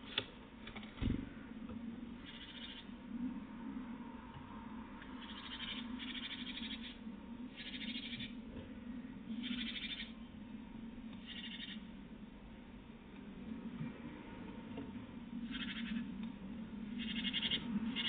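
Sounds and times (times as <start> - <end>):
steady low hum: 0.0 - 18.0
rasping animal calls: 9.3 - 10.2, 11.2 - 11.9, 15.4 - 16.1, 16.9 - 18.0.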